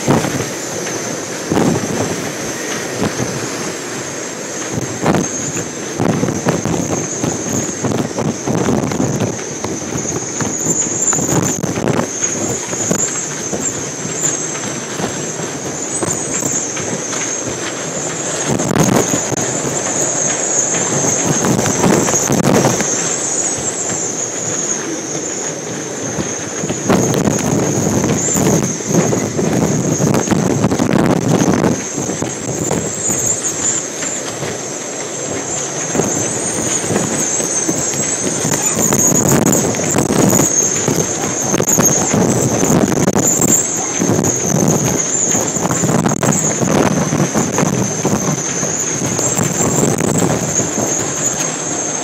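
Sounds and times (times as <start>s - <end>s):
high-pitched wind whistle: 0.0s - 52.0s
strong wind gusts buffeting microphone: 0.0s - 52.0s.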